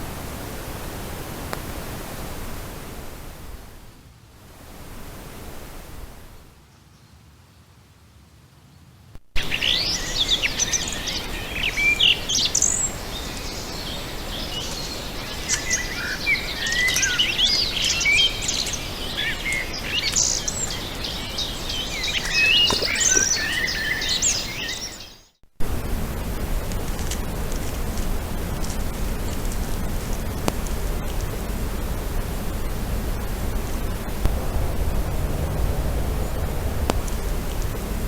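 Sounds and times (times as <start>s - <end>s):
low hiss: 0.0s - 38.0s
songbirds singing and calling: 9.4s - 25.3s.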